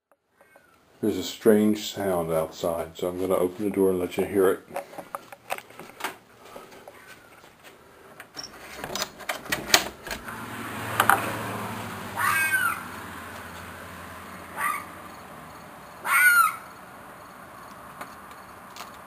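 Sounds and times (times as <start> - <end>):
door opening clicks and knocks: 8.3 - 10.3
animal screeching cry: 12.2 - 12.9, 14.5 - 15.0, 16.0 - 16.8.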